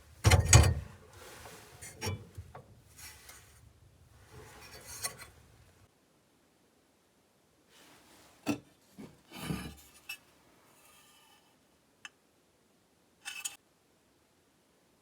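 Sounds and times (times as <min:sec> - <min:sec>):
short scrape: 0:01.1 - 0:03.6, 0:04.2 - 0:05.7.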